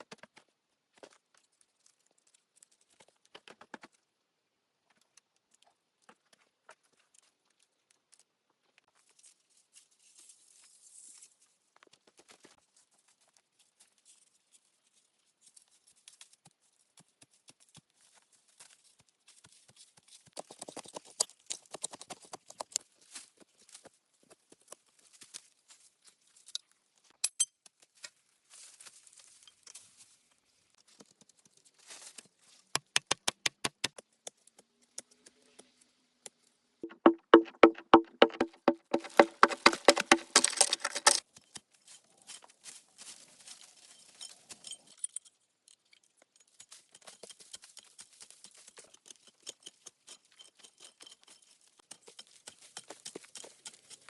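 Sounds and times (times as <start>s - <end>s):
hand tools tapping and scraping: 36.8s - 42.5s, 43.9s - 54.0s.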